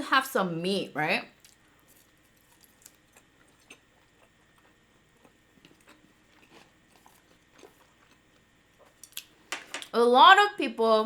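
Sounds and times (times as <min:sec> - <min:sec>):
person chewing food: 0:01.4 - 0:09.5.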